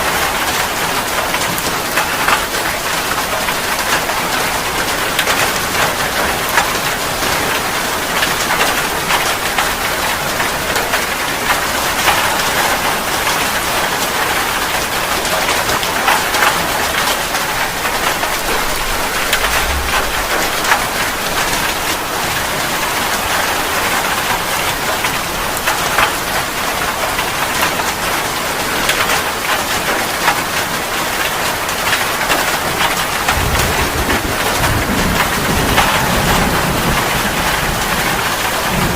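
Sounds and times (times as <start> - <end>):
heavy rain hissing: 16.3 - 25.6.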